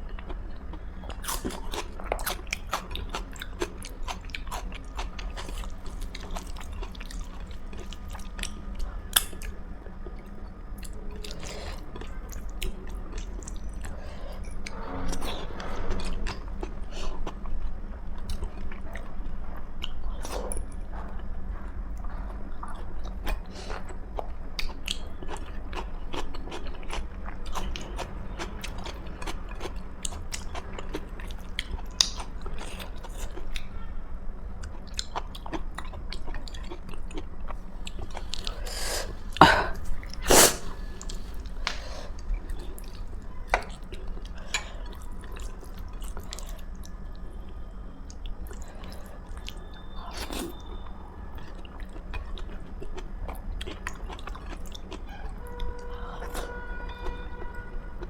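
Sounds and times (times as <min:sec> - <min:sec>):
person chewing food: 0:00.1 - 0:15.4, 0:22.0 - 0:33.6, 0:34.6 - 0:46.9, 0:51.4 - 0:55.0.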